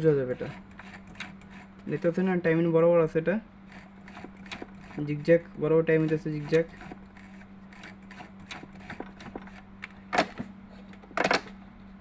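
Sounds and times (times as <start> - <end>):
sewing machine mechanism clicks: 3.7 - 5.1, 6.0 - 11.6.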